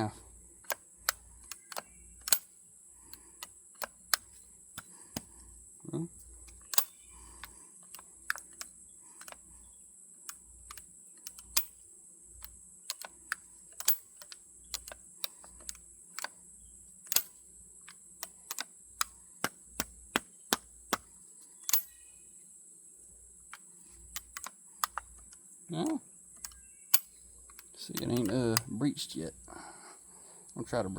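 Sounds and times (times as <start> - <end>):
metallic clicks of shotgun action: 0.6 - 2.5, 6.4 - 9.4, 12.4 - 16.3, 17.0 - 17.4, 18.2 - 22.1, 23.5 - 28.7
high-pitched hiss: 21.0 - 30.9.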